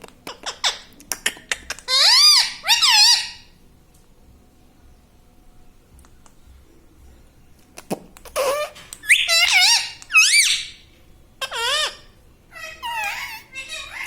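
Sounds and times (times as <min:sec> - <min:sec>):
parrot shrill squeaky calls: 0:00.3 - 0:00.9, 0:01.8 - 0:03.5, 0:08.4 - 0:10.8, 0:11.4 - 0:14.0.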